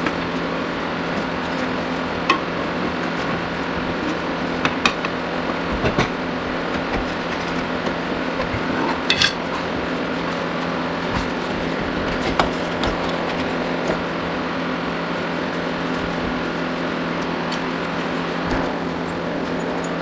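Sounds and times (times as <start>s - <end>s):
workshop hum: 0.0s - 20.0s
metal tools clinking: 9.1s - 9.5s.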